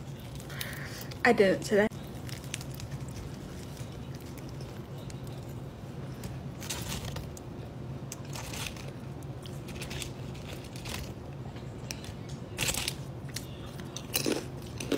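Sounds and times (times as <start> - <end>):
low steady hum: 0.0 - 14.9
wet crunchy chewing: 2.0 - 11.2.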